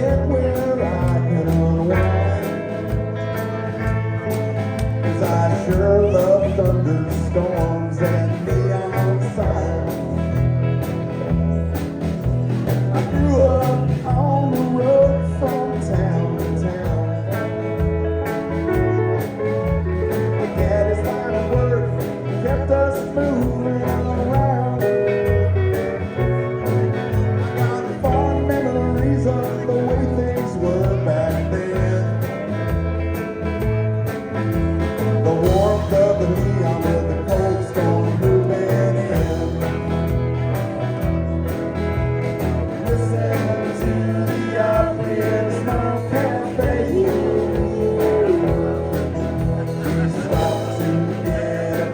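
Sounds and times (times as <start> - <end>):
guitar: 0.0 - 51.9
live band playing country blues: 0.0 - 51.9.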